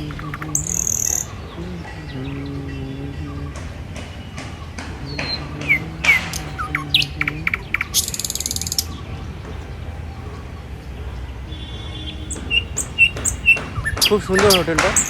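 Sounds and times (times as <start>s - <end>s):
bird rattling trill: 0.0s - 1.4s, 4.2s - 9.0s
birds chirping: 0.0s - 15.0s.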